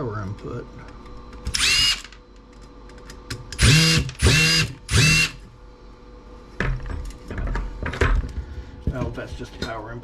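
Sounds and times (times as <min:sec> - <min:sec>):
power drill whining: 0:01.5 - 0:02.1, 0:03.6 - 0:05.4.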